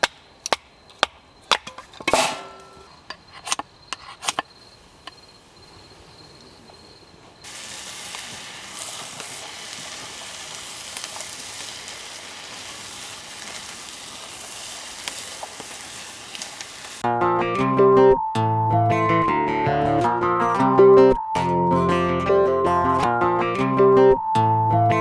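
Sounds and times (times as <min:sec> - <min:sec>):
steady hiss: 0:04.3 - 0:17.0.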